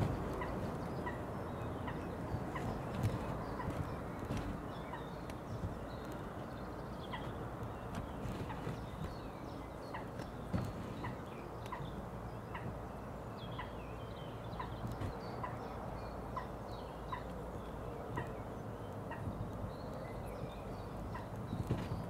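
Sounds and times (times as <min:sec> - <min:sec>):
low background rumble: 0:00.0 - 0:22.0
small birds chirping: 0:00.0 - 0:22.0.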